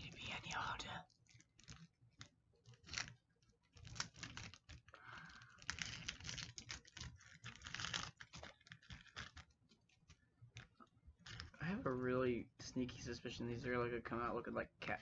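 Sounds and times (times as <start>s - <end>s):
plastic wrapper crinkling: 0.0s - 12.1s.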